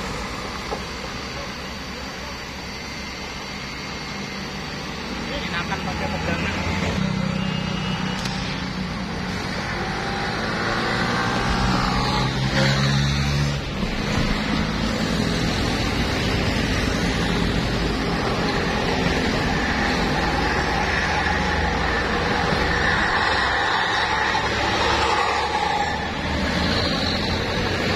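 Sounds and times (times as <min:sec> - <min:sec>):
tyre and road noise: 0:05.3 - 0:27.9
heavy truck engine under load: 0:09.2 - 0:25.0.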